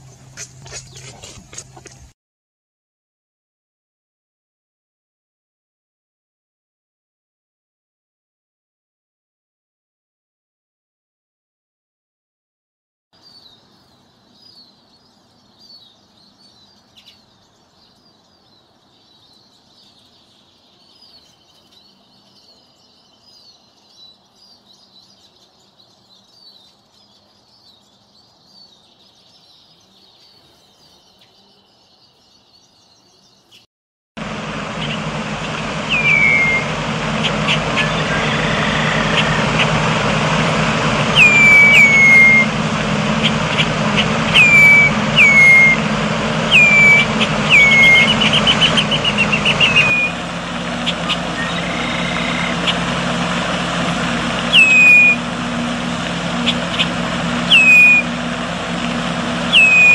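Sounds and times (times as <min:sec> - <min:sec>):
small birds chirping faintly: 0:13.2 - 0:33.7
steady low rumble: 0:34.2 - 0:59.8
whistled calls dropping in pitch: 0:34.7 - 0:59.9.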